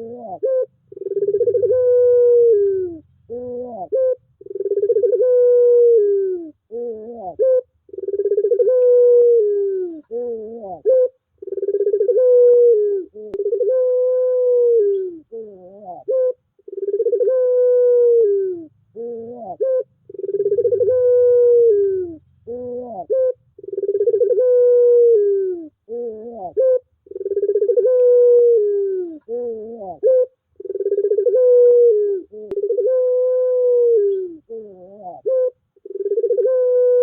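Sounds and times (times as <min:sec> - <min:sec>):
dove cooing: 0:00.0 - 0:37.0.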